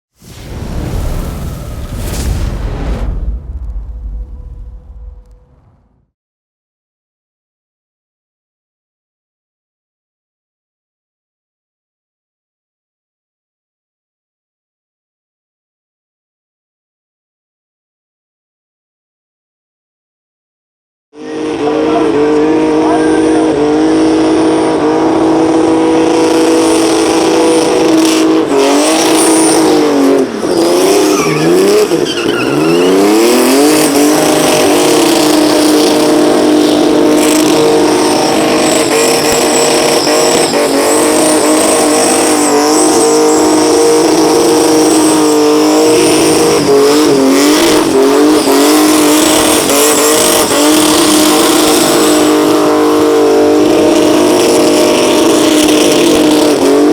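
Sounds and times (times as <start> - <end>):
engine revving at high revs: 21.2 - 32.0, 32.6 - 56.9
tyres spinning and squealing: 26.0 - 56.9.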